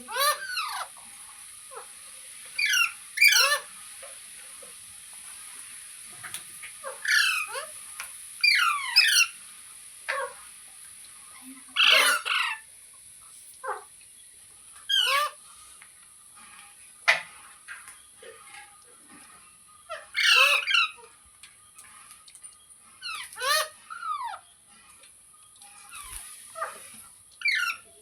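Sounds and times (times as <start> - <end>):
parrot screeching and squawking: 0.0 - 1.0, 2.6 - 3.7, 6.8 - 7.8, 8.4 - 9.4, 11.8 - 12.6, 13.6 - 13.9, 14.9 - 15.4, 19.8 - 21.1, 23.0 - 24.4, 25.8 - 28.0.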